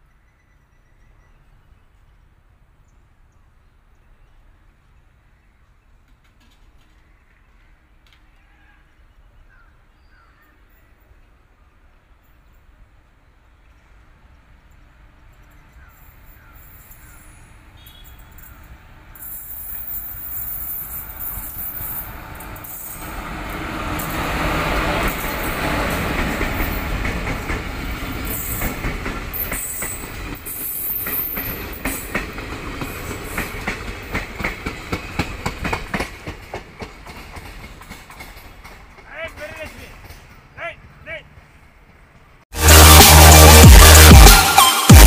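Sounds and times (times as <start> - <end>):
diesel locomotive engine: 10.8 - 44.1
wheels clacking over rail joints: 14.7 - 42.4.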